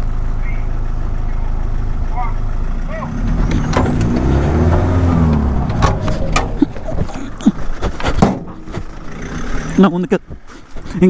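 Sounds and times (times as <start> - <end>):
engine revving: 1.5 - 10.0
sharp knocks and clicks: 3.1 - 9.8.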